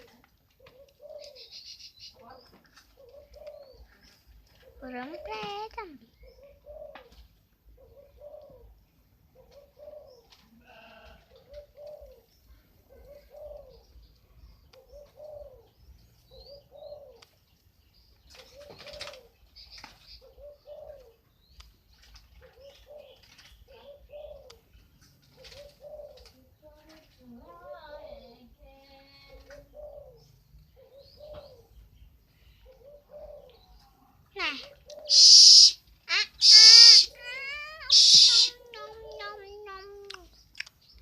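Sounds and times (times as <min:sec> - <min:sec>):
dove cooing: 0:00.0 - 0:17.4, 0:18.2 - 0:21.4, 0:22.0 - 0:40.3
faint high bird chirps: 0:32.5 - 0:41.0.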